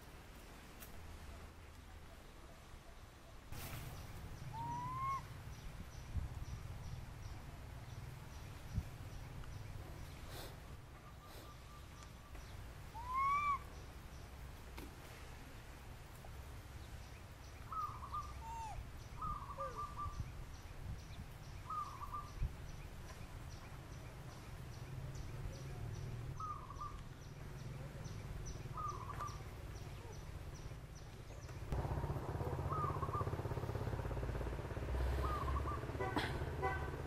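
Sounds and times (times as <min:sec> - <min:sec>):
bird calling short notes: 0:04.5 - 0:05.3, 0:12.9 - 0:13.7
steady low rumble: 0:29.8 - 0:37.0.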